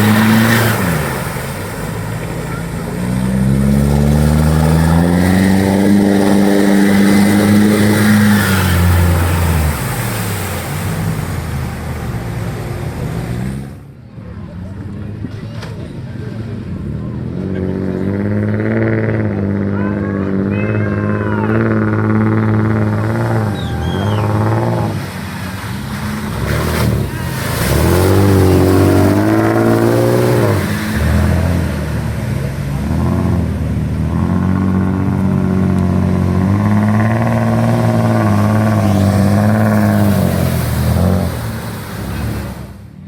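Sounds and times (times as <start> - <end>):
off-road engine revving hard: 0.0 - 13.9, 14.8 - 43.0.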